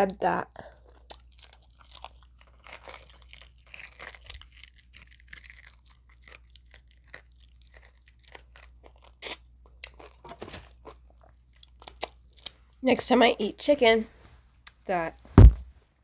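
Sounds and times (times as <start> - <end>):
chewing crispy fried chicken: 0.0 - 12.6.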